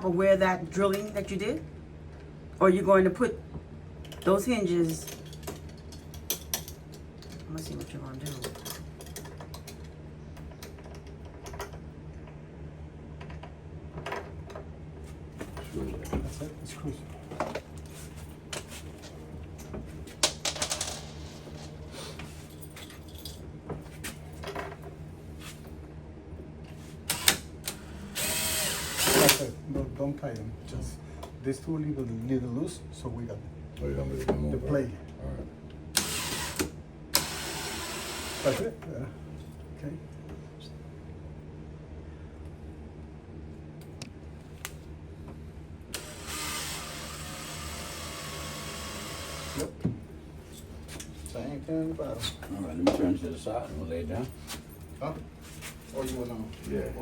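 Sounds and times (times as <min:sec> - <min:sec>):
cordless drill driving screw: 0:27.1 - 0:29.4, 0:36.0 - 0:38.6, 0:46.0 - 0:49.7.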